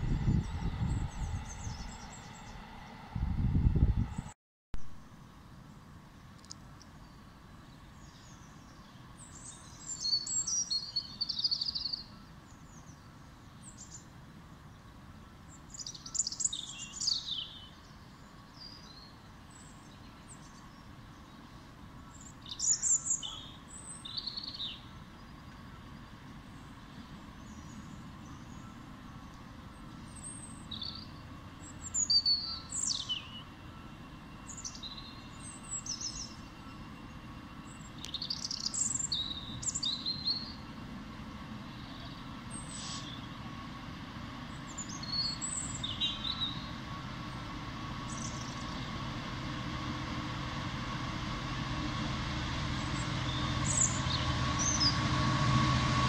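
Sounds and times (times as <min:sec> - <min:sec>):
songbird singing: 0:00.0 - 0:02.9, 0:05.0 - 0:40.7, 0:41.6 - 0:43.8, 0:44.4 - 0:49.2, 0:52.6 - 0:55.2
low background rumble: 0:00.0 - 0:04.4, 0:16.9 - 0:56.0.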